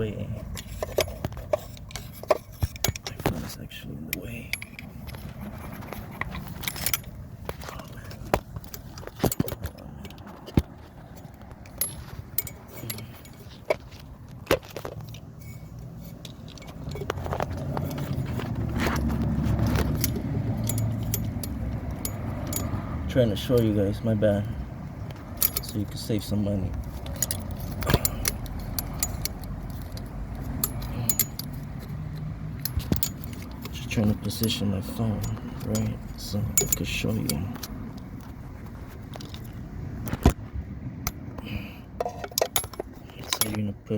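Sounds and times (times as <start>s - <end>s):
small metallic jingles: 0.0s - 39.7s, 41.0s - 43.9s
low steady rumble: 0.0s - 43.9s
metallic clinks of hand tools: 11.7s - 13.5s, 19.8s - 24.2s, 25.4s - 26.4s, 27.0s - 31.7s, 32.6s - 37.7s.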